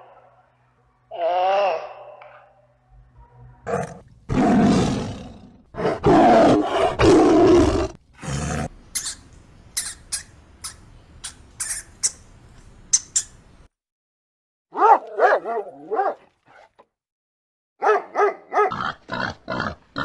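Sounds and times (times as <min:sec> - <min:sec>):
large animal roaring: 0:03.7 - 0:08.7.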